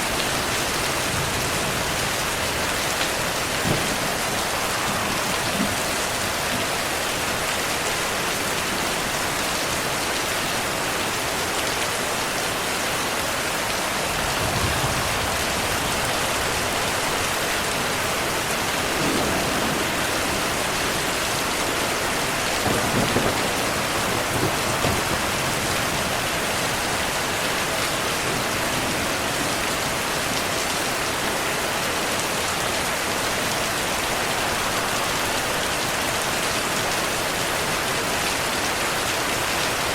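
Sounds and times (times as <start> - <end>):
heavy rain: 0.0 - 39.9
thunder rumbling: 0.1 - 7.5, 14.1 - 27.4.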